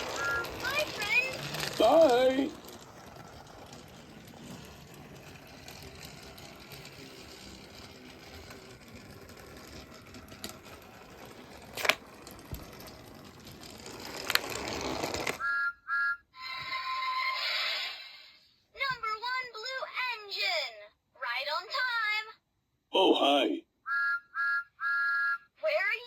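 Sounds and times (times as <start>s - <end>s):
toy train motor whirring: 0.0s - 15.5s.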